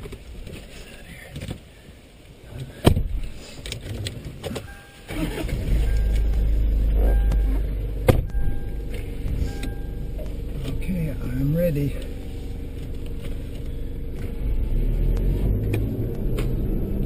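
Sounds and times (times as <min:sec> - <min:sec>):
vehicle knocks and clunks: 0:02.8 - 0:03.2, 0:07.0 - 0:10.9
loud low engine rumble: 0:05.1 - 0:17.0.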